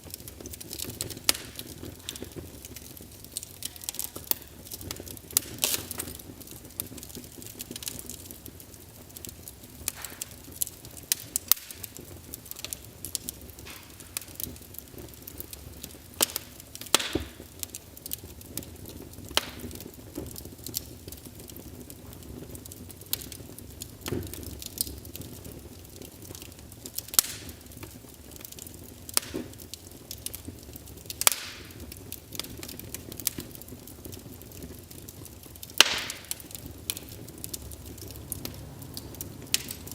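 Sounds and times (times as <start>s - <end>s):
sharp pops of fire: 0.0s - 39.9s
wood fire crackling: 0.0s - 39.9s.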